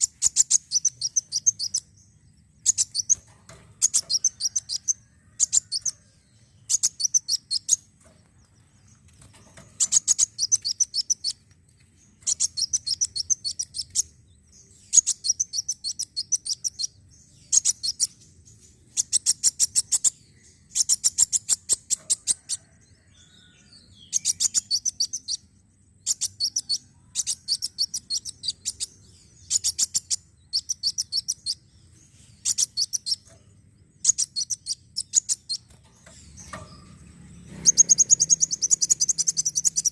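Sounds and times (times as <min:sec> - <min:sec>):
bird singing high-pitched notes: 0:00.0 - 0:02.0, 0:02.6 - 0:03.2, 0:06.6 - 0:07.8, 0:09.8 - 0:11.4, 0:12.2 - 0:18.3, 0:24.0 - 0:31.7, 0:32.4 - 0:33.3, 0:34.0 - 0:35.8, 0:36.4 - 0:39.9.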